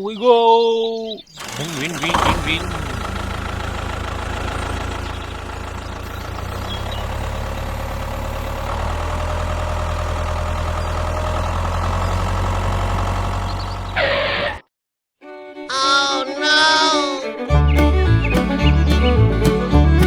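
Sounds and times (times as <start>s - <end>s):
small tractor engine running: 1.3s - 14.6s.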